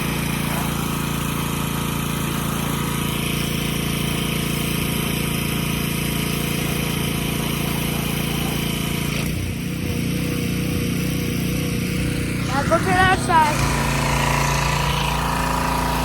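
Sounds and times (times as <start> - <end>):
hiss: 0.0 - 12.0
small engine running: 0.0 - 16.0.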